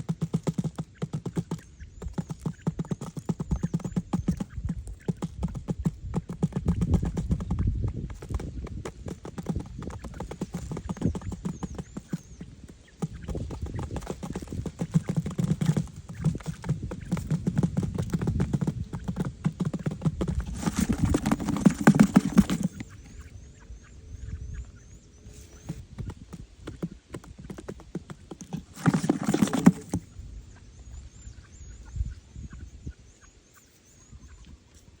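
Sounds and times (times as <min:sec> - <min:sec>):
knocking and scraping: 0:13.3 - 0:22.9, 0:27.2 - 0:30.1.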